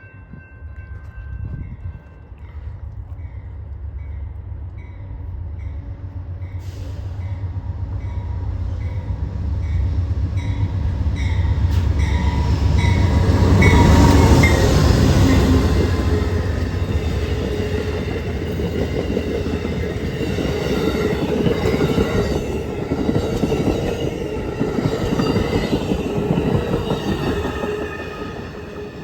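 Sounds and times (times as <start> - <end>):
crossing bell ringing: 0.0 - 5.0, 10.4 - 29.0
diesel train rumble and wheel noise: 0.0 - 29.0.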